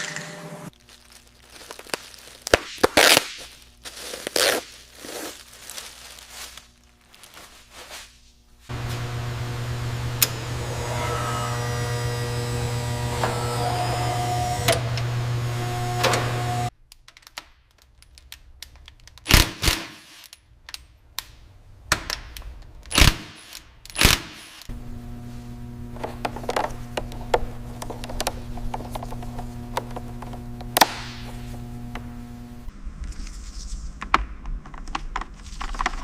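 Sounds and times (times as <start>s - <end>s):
steady hum: 8.4s - 16.7s, 24.7s - 32.9s.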